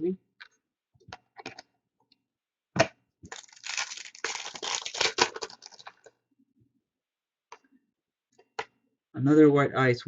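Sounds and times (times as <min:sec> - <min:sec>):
wrapper crinkling and tearing: 0:03.3 - 0:06.1.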